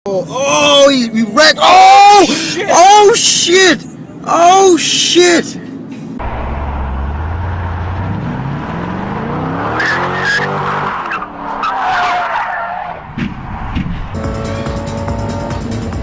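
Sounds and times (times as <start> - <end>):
car engine revving hard: 6.2 - 11.4.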